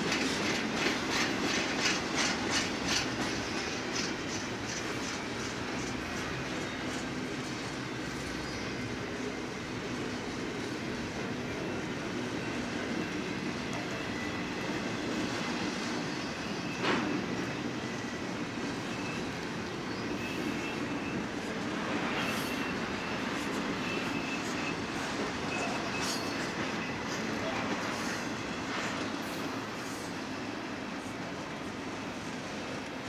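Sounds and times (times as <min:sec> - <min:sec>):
freight train wheels rumbling: 0:00.0 - 0:33.0.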